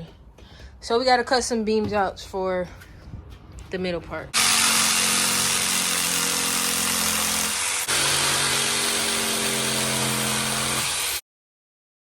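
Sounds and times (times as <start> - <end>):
electric saw cutting wood: 4.4 - 11.2.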